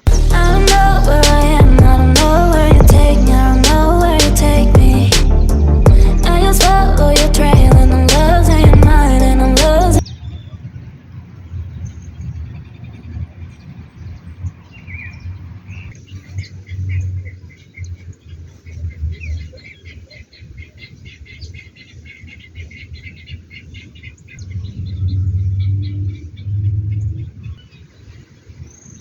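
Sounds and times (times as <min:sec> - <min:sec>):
steady low rumble: 0:00.0 - 0:10.0, 0:24.4 - 0:27.6
small birds chirping: 0:11.5 - 0:29.0.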